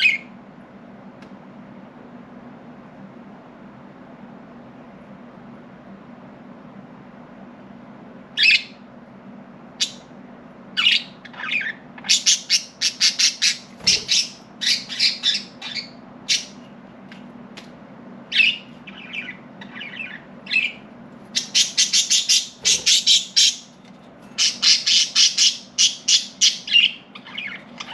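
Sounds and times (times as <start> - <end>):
budgerigars chirping and squawking: 0.0 - 0.3, 10.8 - 16.6, 18.3 - 23.8, 24.4 - 27.9.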